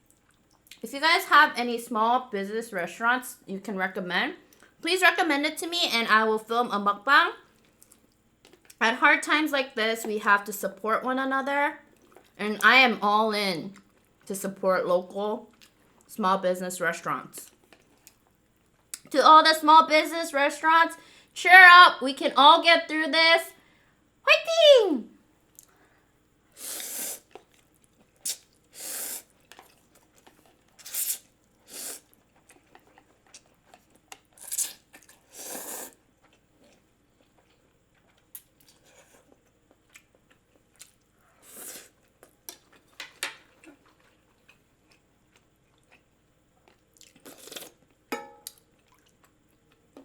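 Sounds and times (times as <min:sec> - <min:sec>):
person chewing and biting: 0:27.2 - 0:50.0.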